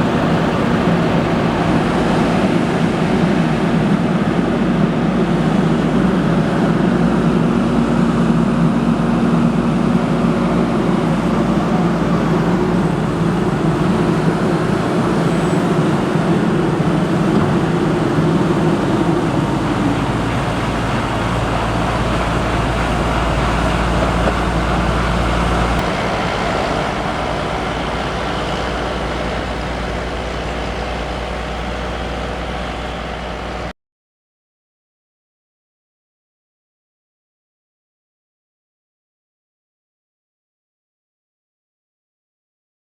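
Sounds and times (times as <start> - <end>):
diesel farm machinery running: 0.0 - 33.7.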